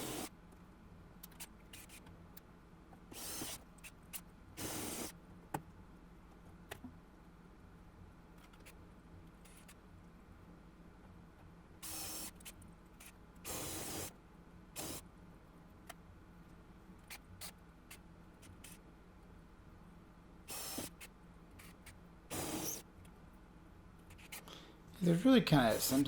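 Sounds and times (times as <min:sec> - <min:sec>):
drill hissing into metal: 0:20.5 - 0:20.9, 0:22.3 - 0:22.8.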